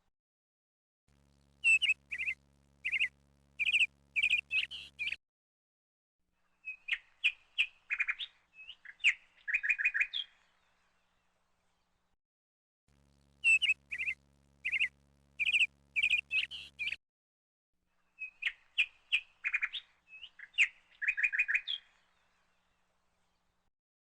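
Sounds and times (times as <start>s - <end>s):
songbird chirping: 1.6s - 5.2s, 6.4s - 12.1s, 13.4s - 17.0s, 18.0s - 23.6s.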